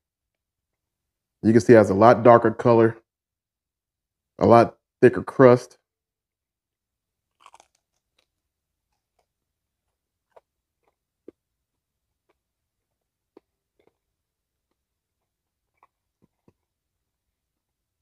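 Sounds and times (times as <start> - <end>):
crunching and chewing fried chicken: 7.2 - 18.0.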